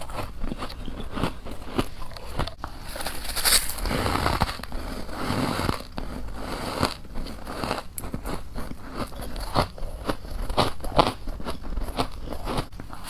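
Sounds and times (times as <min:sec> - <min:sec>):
frost crunched in the mouth: 0:02.8 - 0:04.6.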